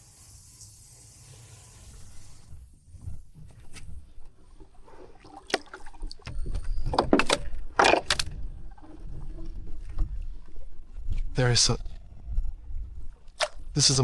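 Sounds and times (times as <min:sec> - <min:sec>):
low rumble of water and handling: 0:01.9 - 0:14.0
fish splashing in water: 0:04.8 - 0:09.5.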